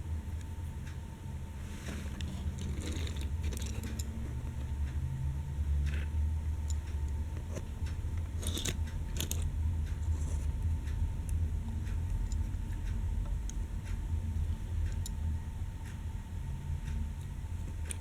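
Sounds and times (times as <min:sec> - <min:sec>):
low steady hum: 0:00.0 - 0:18.0
toy train clicks and rattles: 0:01.9 - 0:04.1, 0:08.4 - 0:09.5.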